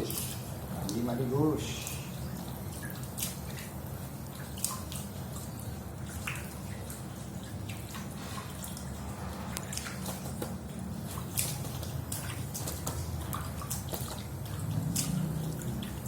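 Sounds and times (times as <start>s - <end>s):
water splashing and dripping: 0.0s - 16.0s
low rush of water: 7.9s - 16.0s.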